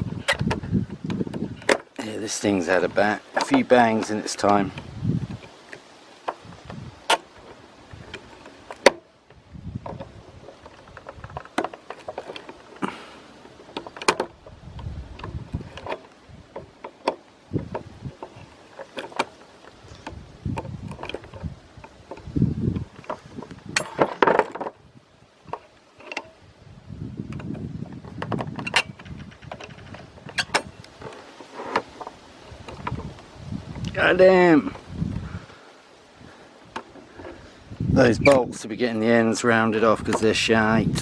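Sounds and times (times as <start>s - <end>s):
tools clinking on metal parts: 23.7s - 24.6s.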